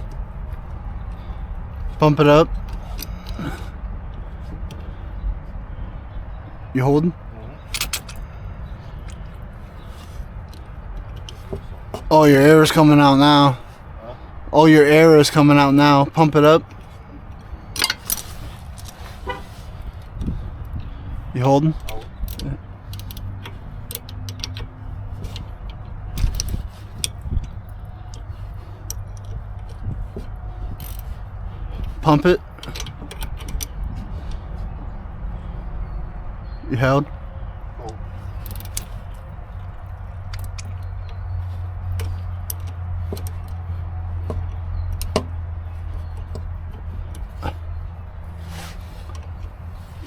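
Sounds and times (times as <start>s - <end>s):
steady low hum: 0.0s - 50.0s
metal tool clicks and clinks: 7.6s - 8.3s, 17.4s - 19.0s, 21.8s - 31.3s, 32.1s - 33.8s, 37.8s - 39.3s
hand tools clicking and tapping: 7.6s - 13.2s, 15.2s - 19.2s, 19.8s - 34.8s, 37.7s - 50.0s.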